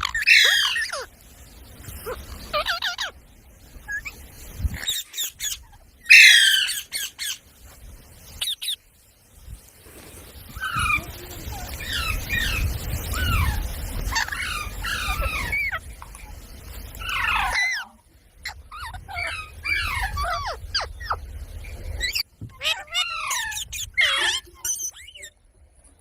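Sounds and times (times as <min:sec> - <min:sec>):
parrot chirping: 0:00.0 - 0:01.1, 0:02.0 - 0:03.2, 0:03.8 - 0:04.2, 0:04.8 - 0:07.4, 0:08.3 - 0:08.8, 0:10.5 - 0:25.4
parrot squawking: 0:00.0 - 0:01.1, 0:02.0 - 0:03.2, 0:04.8 - 0:07.4, 0:10.6 - 0:15.9, 0:17.0 - 0:21.2, 0:22.0 - 0:25.3.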